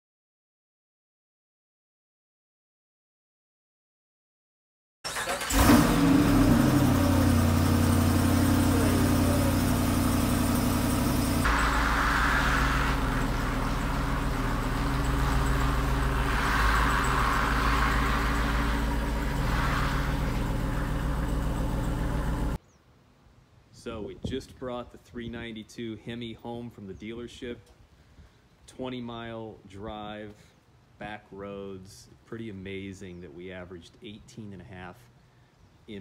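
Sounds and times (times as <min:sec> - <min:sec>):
car engine revving and idling: 0:05.4 - 0:22.6.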